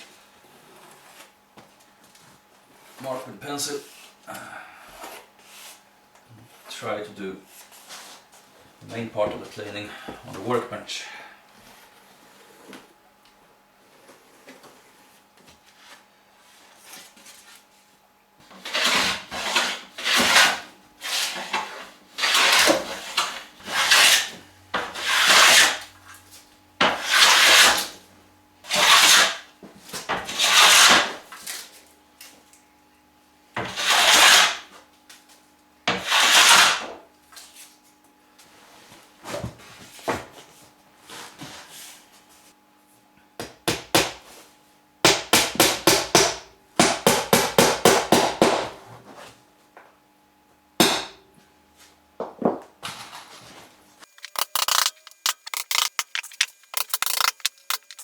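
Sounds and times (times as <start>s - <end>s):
hand plane shaving wood: 18.6s - 24.3s, 24.9s - 25.8s, 27.0s - 27.9s, 28.7s - 29.4s, 33.7s - 34.6s, 36.0s - 36.8s.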